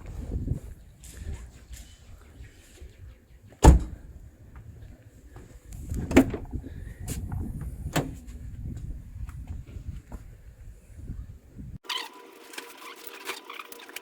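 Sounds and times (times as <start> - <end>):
low rumbling: 5.5 - 11.8.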